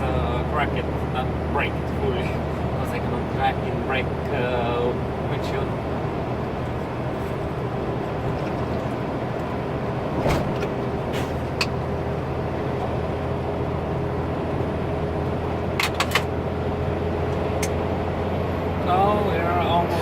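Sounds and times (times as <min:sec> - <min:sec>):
truck engine and road drone: 0:00.0 - 0:20.0
sharp clicks and knocks: 0:15.8 - 0:16.3.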